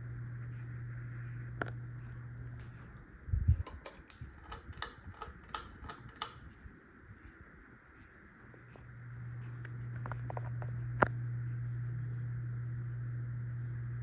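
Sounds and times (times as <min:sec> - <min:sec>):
sharp clicks: 0:03.6 - 0:06.5.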